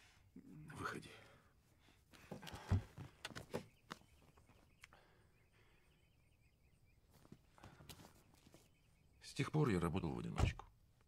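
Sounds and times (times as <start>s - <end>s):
faint birds chirping: 0.0s - 11.0s
soft rustles and clicks: 7.1s - 8.8s.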